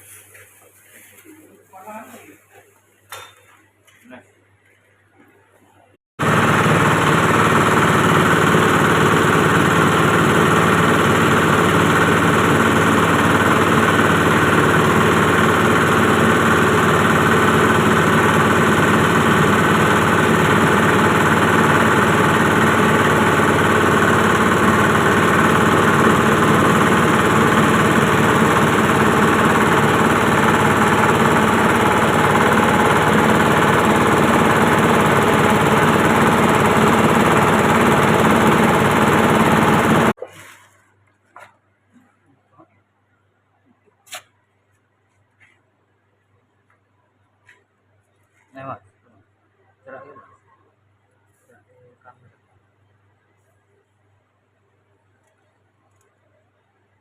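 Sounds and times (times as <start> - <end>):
grinding machine running: 6.2 - 40.2.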